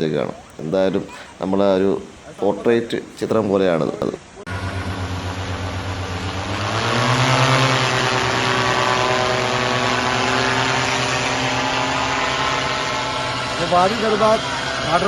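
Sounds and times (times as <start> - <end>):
vehicle engine running: 4.5 - 15.0.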